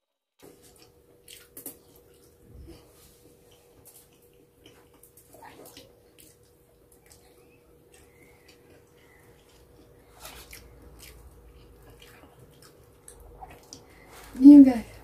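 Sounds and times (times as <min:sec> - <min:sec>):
person chewing: 0:00.4 - 0:14.3.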